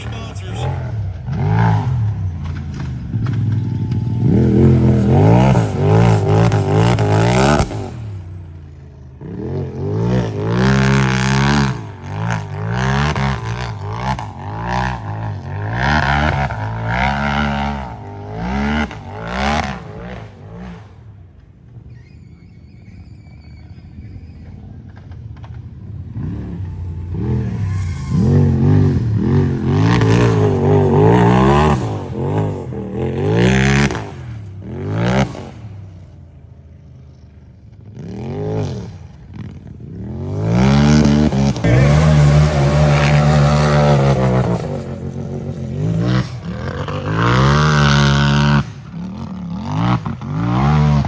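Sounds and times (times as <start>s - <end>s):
engine revving hard: 0.0s - 2.6s, 4.1s - 8.2s, 9.2s - 20.8s, 26.2s - 35.8s, 40.0s - 51.0s.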